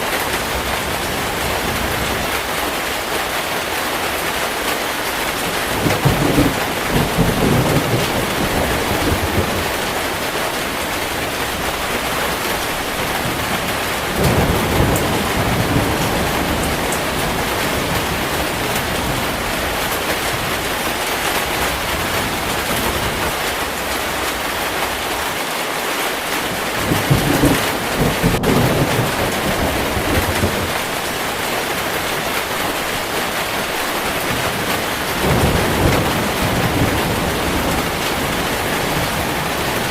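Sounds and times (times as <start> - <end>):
heavy steady rain: 0.0 - 39.9
thunder rolling: 5.4 - 24.3, 26.5 - 39.9.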